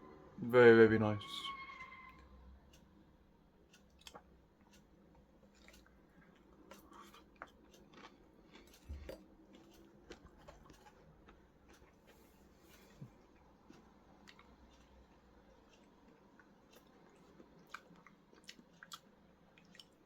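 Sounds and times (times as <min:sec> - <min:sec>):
person chewing crunchy food: 0:03.6 - 0:20.0.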